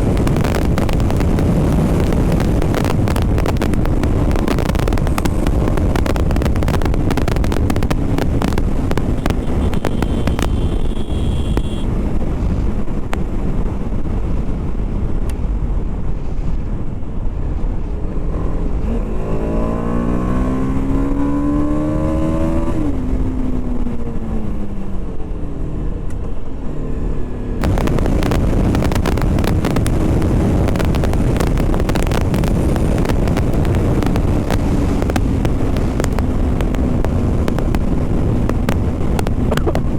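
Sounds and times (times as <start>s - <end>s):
motorcycle engine revving: 0.0s - 11.9s, 26.9s - 39.9s
wind noise on microphone: 0.0s - 26.8s, 27.4s - 39.9s.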